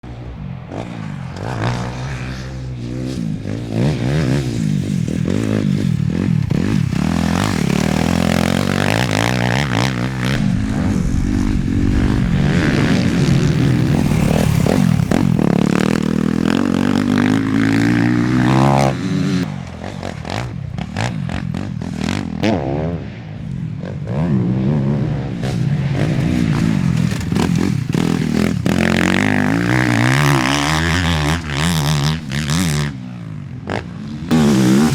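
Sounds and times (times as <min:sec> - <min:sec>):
motocross bike engine revving: 0:00.7 - 0:23.2, 0:23.8 - 0:34.9.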